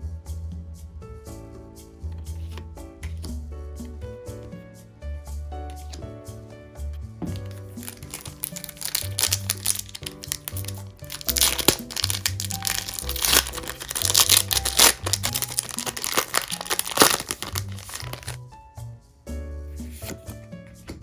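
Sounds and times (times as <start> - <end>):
background music: 0.0 - 21.0
foil wrapper crinkling: 7.6 - 18.4.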